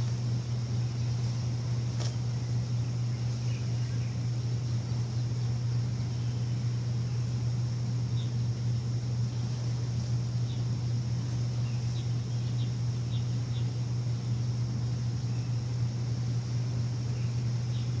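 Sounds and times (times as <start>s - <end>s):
birds chirping: 0.0s - 18.0s
low machine hum: 0.0s - 18.0s.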